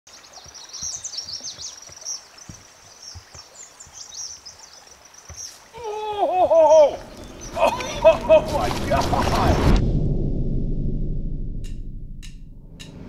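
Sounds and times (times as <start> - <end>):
soft outdoor hiss: 0.1 - 9.3
songbirds chirping and trilling: 0.1 - 9.7
faint low thumps: 9.6 - 13.0.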